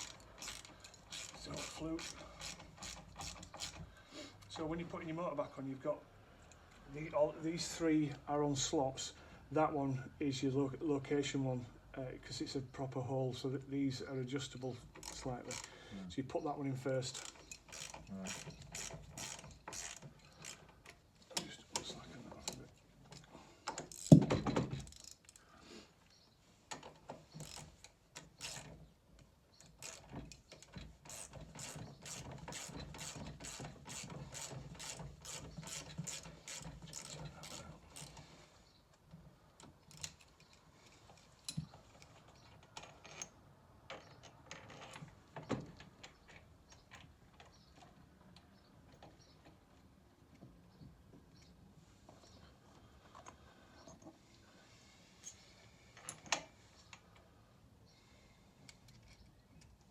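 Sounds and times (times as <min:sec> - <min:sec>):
ratchet spanner clicking: 0:17.1 - 0:20.6, 0:31.1 - 0:38.2
tools clicking and tapping: 0:17.1 - 0:25.4, 0:29.6 - 0:38.2.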